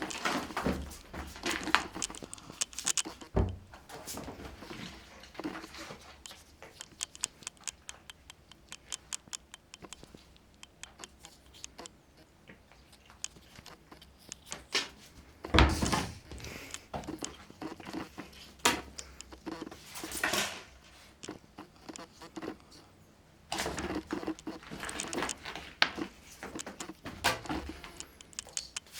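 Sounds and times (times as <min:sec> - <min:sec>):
quick light clicks and taps: 0:05.4 - 0:14.6, 0:23.8 - 0:28.9.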